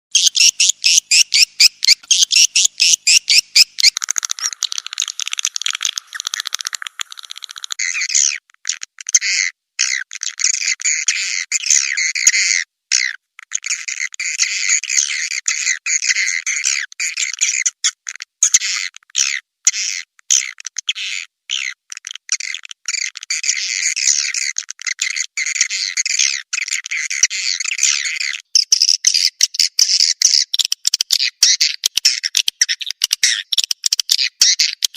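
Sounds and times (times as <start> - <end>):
swiftlet chittering calls: 0.1 - 12.5.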